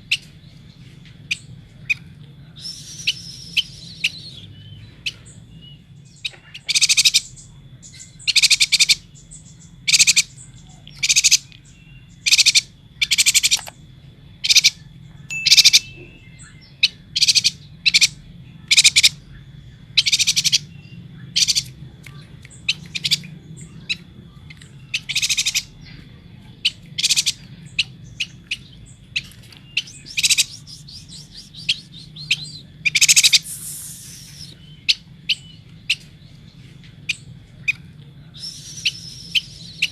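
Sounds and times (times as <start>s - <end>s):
bird chattering calls: 1.3s - 26.0s, 26.6s - 36.2s, 37.0s - 39.9s
low hum: 9.1s - 39.9s
faint high whine: 11.5s - 20.0s, 28.6s - 36.5s.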